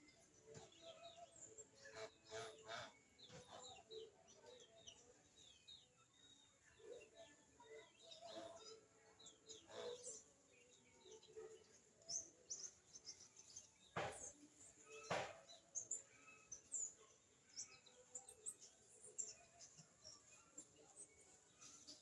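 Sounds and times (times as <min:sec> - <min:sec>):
small birds chirping: 0:00.0 - 0:22.0
sharp knocks: 0:14.0 - 0:14.3, 0:15.0 - 0:15.4.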